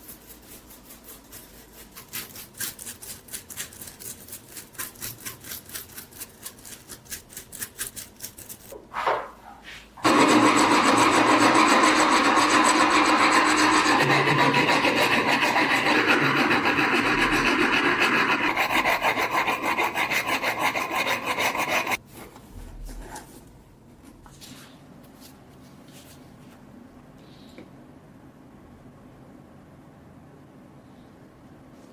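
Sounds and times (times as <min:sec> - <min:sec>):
loud continuous grinding: 0:10.0 - 0:22.0
rhythmic rubbing on steel: 0:10.0 - 0:22.0.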